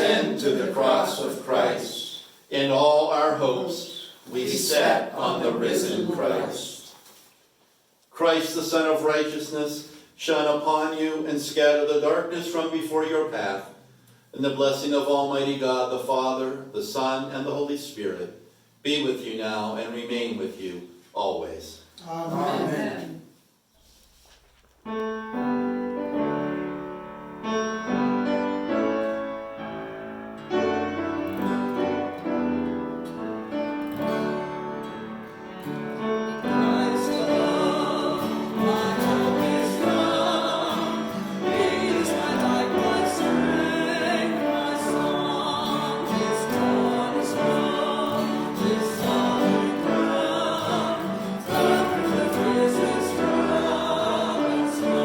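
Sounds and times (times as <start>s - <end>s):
voices singing a hymn: 0.0s - 7.0s, 22.2s - 23.3s, 36.0s - 55.0s
piano playing: 24.9s - 55.0s.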